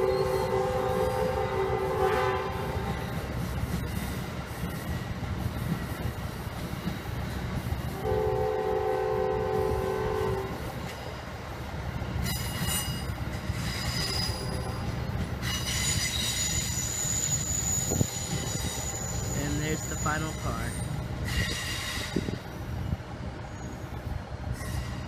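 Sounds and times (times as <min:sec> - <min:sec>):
multi-note train horn: 0:00.0 - 0:03.0, 0:07.9 - 0:10.6
train rumbling past: 0:00.0 - 0:25.0
high-pitched wheel squeal: 0:12.3 - 0:14.8, 0:15.4 - 0:20.3.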